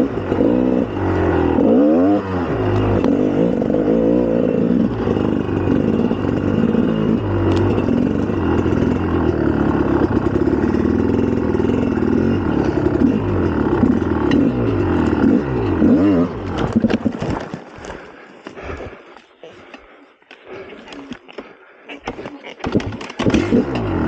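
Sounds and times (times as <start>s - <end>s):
motorcycle engine revving: 0.0s - 17.2s, 22.6s - 24.0s.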